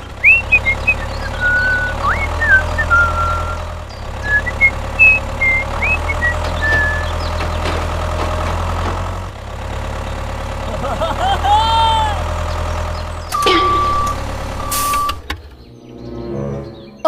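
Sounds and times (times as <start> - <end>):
high whistle-like chirps: 0.2 - 3.6, 4.3 - 7.2.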